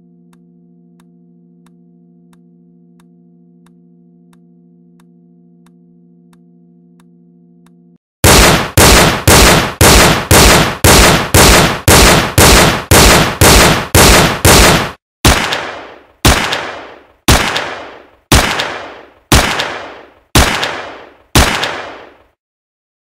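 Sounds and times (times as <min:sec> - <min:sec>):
gunshots: 0:08.2 - 0:22.4.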